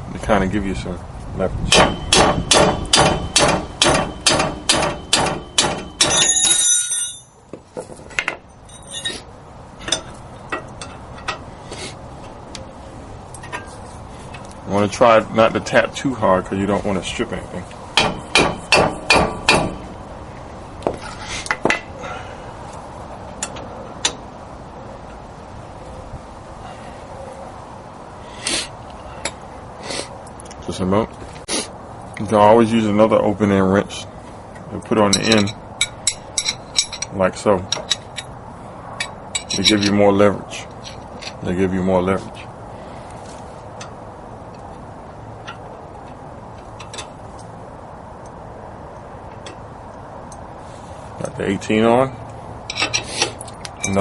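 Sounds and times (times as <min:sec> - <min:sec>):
steady background noise: 0:00.0 - 0:54.0
hammer striking wrench: 0:01.7 - 0:07.3, 0:18.0 - 0:19.8
light metal clinks: 0:06.0 - 0:07.4
metallic clicks of wrenches: 0:23.4 - 0:24.2, 0:35.1 - 0:38.3, 0:39.0 - 0:40.0, 0:40.7 - 0:41.5, 0:52.7 - 0:54.0.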